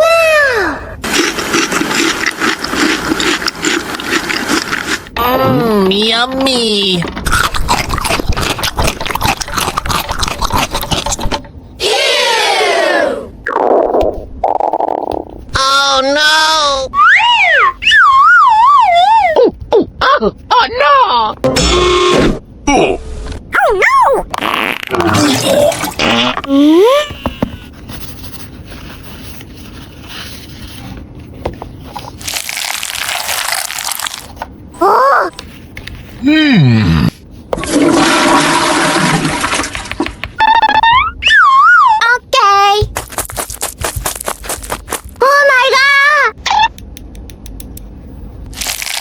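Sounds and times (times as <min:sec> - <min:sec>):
high voice-like falling sound: 0:05.2 - 0:06.1, 0:16.6 - 0:19.5, 0:22.6 - 0:24.4, 0:34.8 - 0:35.4, 0:40.4 - 0:42.3
rising squeaky sound: 0:40.4 - 0:42.0
packaging rustling: 0:42.9 - 0:45.2.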